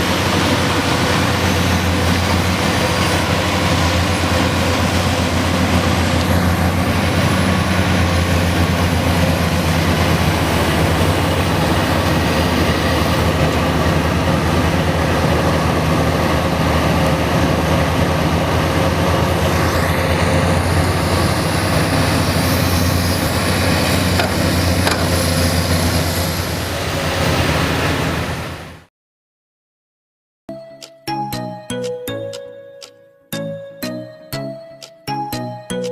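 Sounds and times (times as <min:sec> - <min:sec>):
diesel engine droning: 0:00.0 - 0:28.8.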